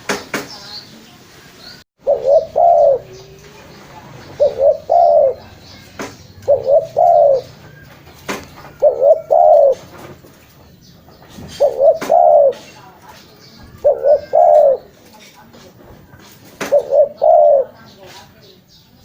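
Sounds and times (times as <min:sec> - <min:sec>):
dove cooing: 0:02.0 - 0:10.3, 0:11.4 - 0:12.8, 0:13.6 - 0:15.1, 0:16.6 - 0:18.0.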